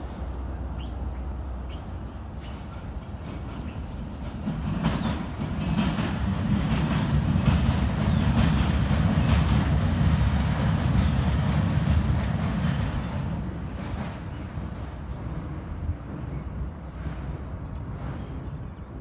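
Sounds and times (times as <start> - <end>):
diesel locomotive engine rumble: 0.0 - 19.0
wheels clicking over rail joints: 1.7 - 15.5.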